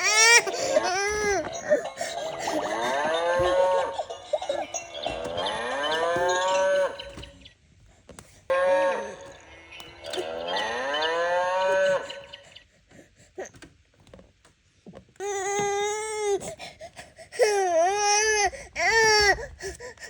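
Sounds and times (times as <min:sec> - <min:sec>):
baby crying: 0:00.0 - 0:03.8.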